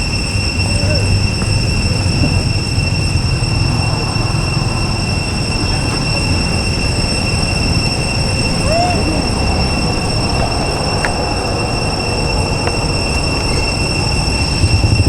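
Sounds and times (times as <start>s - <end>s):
continuous low rumble: 0.0s - 15.0s
high-pitched drone: 0.0s - 15.0s.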